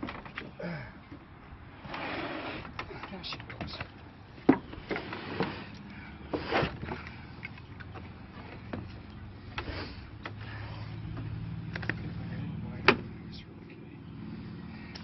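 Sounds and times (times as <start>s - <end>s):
engine scraping on boards: 1.7s - 3.2s, 4.5s - 13.2s.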